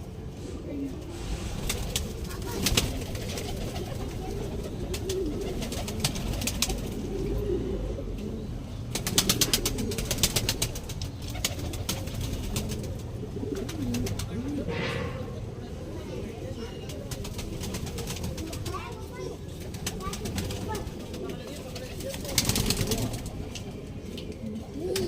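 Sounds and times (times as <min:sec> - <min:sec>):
pigeons cooing: 0:00.1 - 0:25.0.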